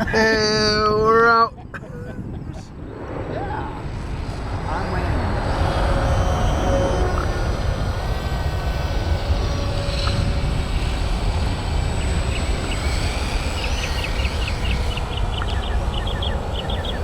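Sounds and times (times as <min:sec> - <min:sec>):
wind buffeting microphone: 0:00.0 - 0:17.0
model plane motor whine: 0:03.8 - 0:17.0.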